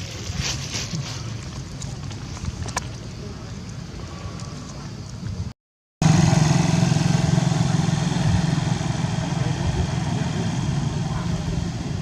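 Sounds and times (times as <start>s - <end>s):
engine idling: 6.0s - 12.0s.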